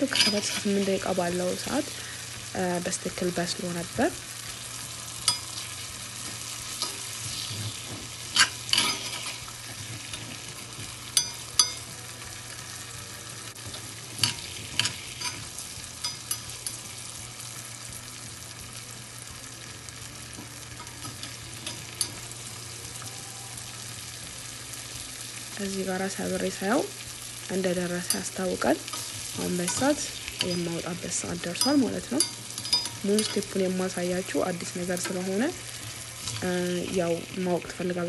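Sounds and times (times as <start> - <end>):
metal spoon scraping a pan: 0.0 - 2.0, 4.5 - 11.9, 13.5 - 17.0, 27.9 - 37.2
liver sizzling in hot oil: 0.0 - 38.0.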